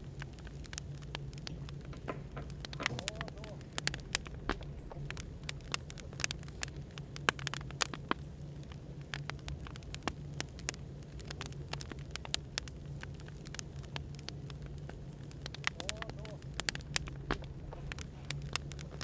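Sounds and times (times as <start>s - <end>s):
firewood crackling and popping: 0.0s - 19.0s
low background hum: 0.0s - 19.0s.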